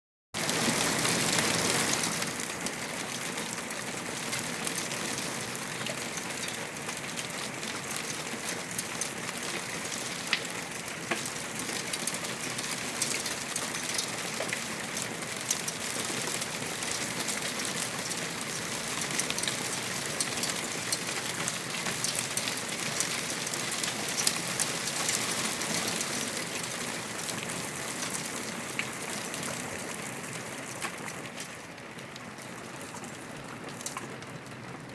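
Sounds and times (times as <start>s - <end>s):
heavy rain falling: 0.4s - 34.9s.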